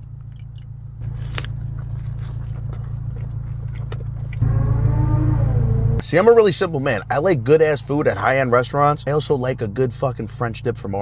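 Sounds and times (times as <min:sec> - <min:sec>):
man chewing sandwich: 0:00.0 - 0:04.5
steady low hum: 0:00.0 - 0:11.0.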